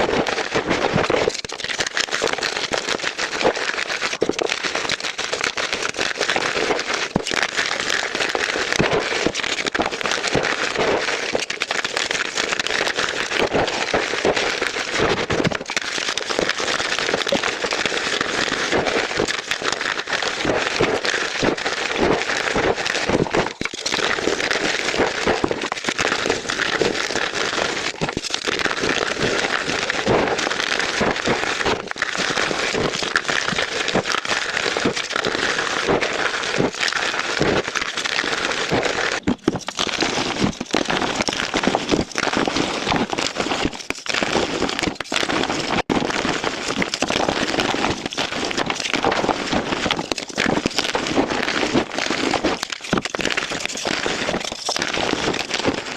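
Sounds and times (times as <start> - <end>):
chalk blocks crunching: 22.6 - 55.9.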